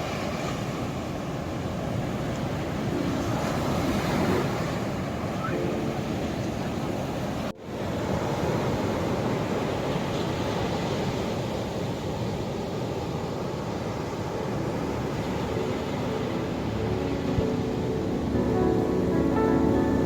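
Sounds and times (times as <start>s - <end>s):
ocean surf rushing: 0.0s - 20.0s
soft music: 2.8s - 7.7s, 14.8s - 20.0s.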